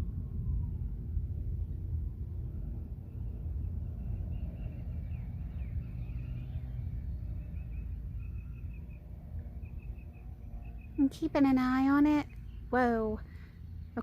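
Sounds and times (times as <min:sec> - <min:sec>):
storm rumble: 0:00.0 - 0:14.0
faint high chirping calls: 0:03.0 - 0:14.0.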